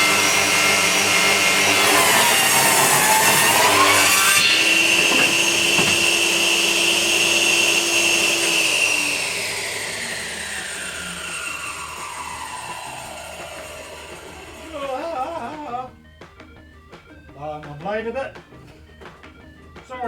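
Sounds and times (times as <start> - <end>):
power saw cutting wood: 0.0 - 15.8
saw running free whine: 0.0 - 15.8.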